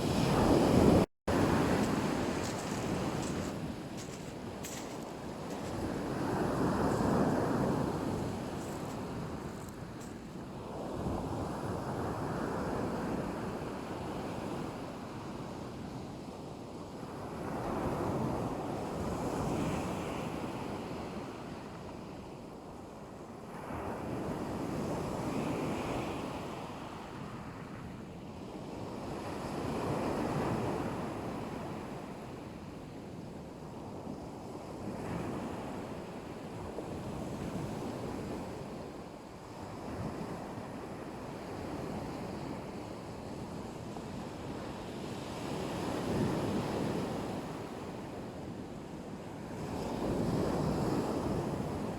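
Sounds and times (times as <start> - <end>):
waves breaking on shore: 0.0 - 11.0.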